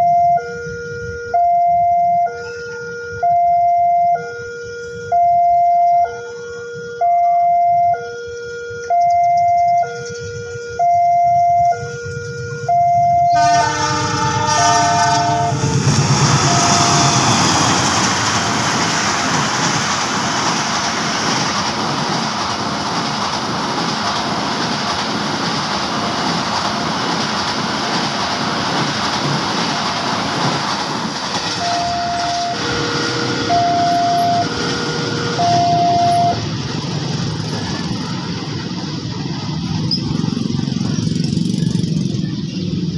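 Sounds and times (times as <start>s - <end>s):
locomotive horn: 0.0s - 18.3s, 31.4s - 36.4s
two-tone warning alarm: 0.0s - 18.7s, 31.4s - 36.5s
train rumbling past: 8.4s - 42.9s.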